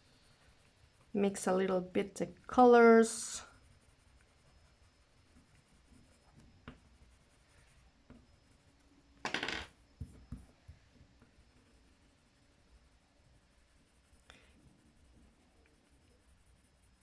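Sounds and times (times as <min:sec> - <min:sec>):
coloured pencils scratching card: 0:00.3 - 0:10.3.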